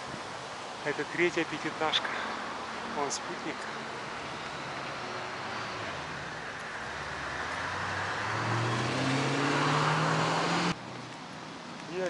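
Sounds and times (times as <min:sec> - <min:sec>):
car engine accelerating: 0:04.6 - 0:10.8.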